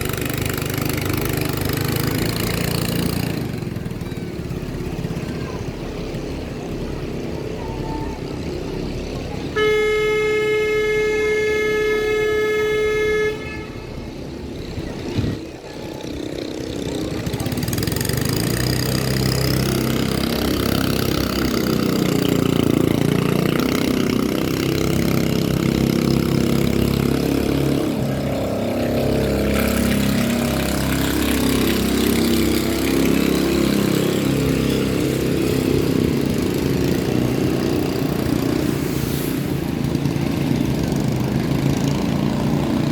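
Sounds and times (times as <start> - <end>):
engine noise: 0.0 - 42.9
voices: 0.0 - 42.9
horn blast: 9.5 - 14.1.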